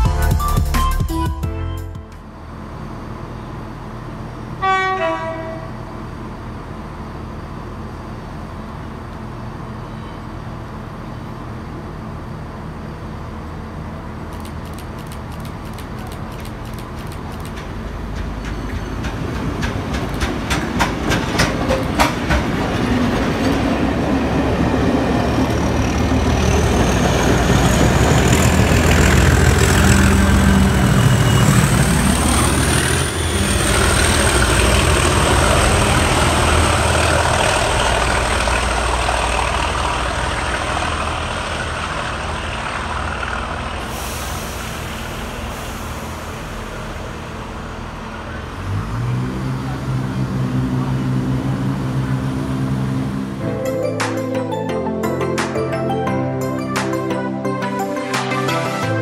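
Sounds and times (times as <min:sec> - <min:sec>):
heavy train engine rumble: 0:02.0 - 0:54.0
wheel clicks over rail joints: 0:14.4 - 0:22.6.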